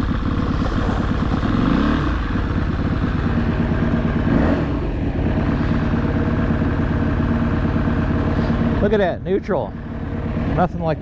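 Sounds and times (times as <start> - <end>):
motorcycle engine: 0.0 - 11.0.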